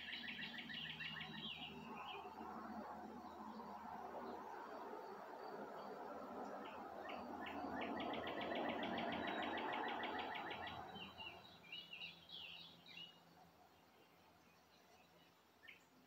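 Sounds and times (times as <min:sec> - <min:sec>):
songbird trilling: 0:00.0 - 0:02.4, 0:06.6 - 0:13.2
bird chirps: 0:00.0 - 0:04.8, 0:05.8 - 0:16.0.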